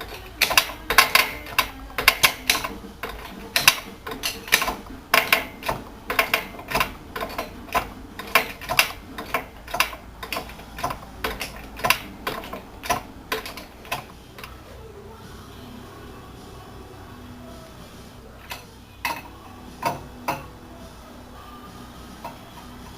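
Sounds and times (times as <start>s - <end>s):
tool clicks and clacks: 0.0s - 14.5s
low steady hum: 0.0s - 22.9s.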